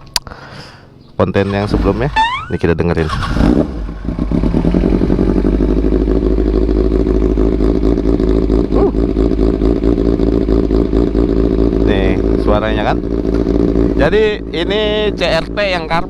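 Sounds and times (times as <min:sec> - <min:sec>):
motorcycle engine idling: 0:01.0 - 0:16.0.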